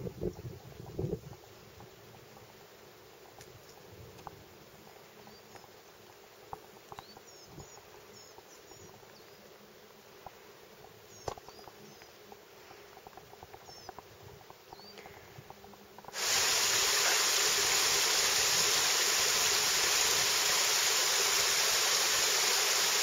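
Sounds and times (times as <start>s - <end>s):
background hiss: 0.0s - 23.0s
light ticks: 3.2s - 9.4s
small birds chirping: 4.8s - 16.2s.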